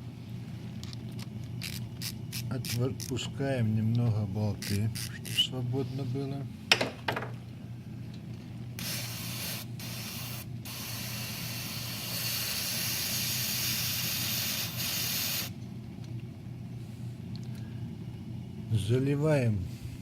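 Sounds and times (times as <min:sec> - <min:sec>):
steady low hum: 0:00.0 - 0:20.0
aerosol spraying: 0:08.8 - 0:15.5.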